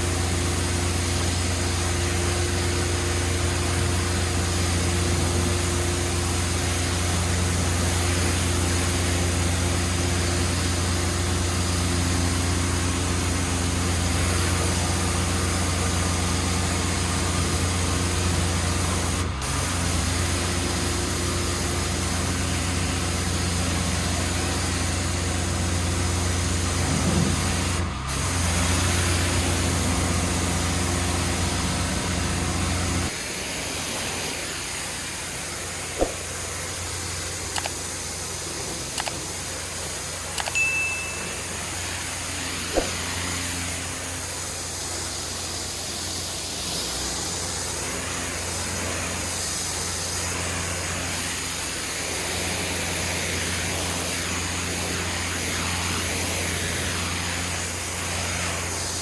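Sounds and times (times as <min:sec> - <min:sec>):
pressure washer engine running: 0:00.0 - 0:59.0
water spraying on stone: 0:00.0 - 0:59.0.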